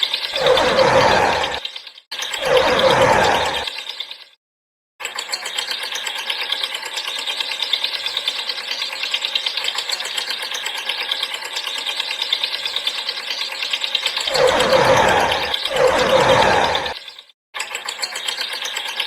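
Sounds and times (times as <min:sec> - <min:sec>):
geared mechanism clicking: 0:00.0 - 0:04.4, 0:05.0 - 0:19.0.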